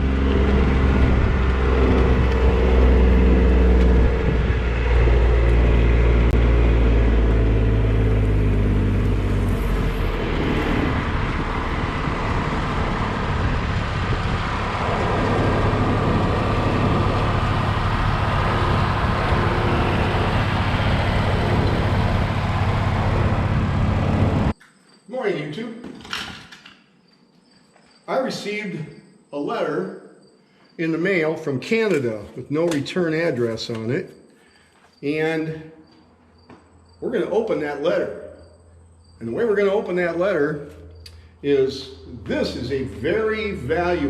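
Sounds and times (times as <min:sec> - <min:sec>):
tractor engine running: 0:00.0 - 0:24.6, 0:38.4 - 0:44.0.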